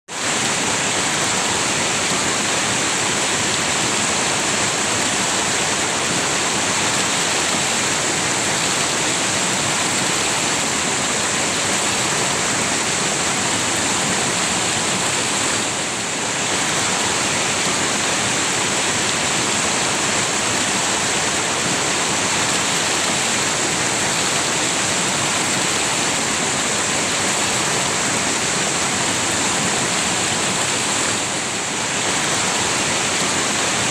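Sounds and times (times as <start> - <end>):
river rushing over rocks: 0.1 - 33.9.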